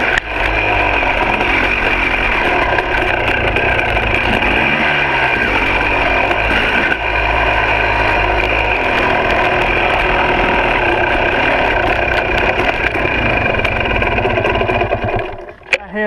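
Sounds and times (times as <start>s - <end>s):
two-stroke dirt bike engine running: 0.0s - 16.0s.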